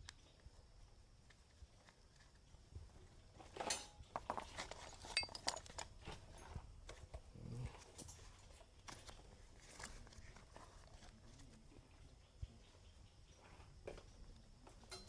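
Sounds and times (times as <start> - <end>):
tools and metal parts clicking: 3.6 - 6.6.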